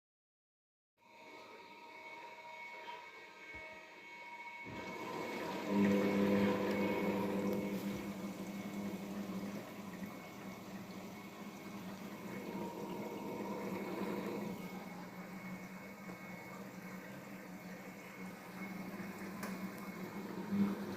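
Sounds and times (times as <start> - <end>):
water rushing into washing machine: 4.7 - 20.9.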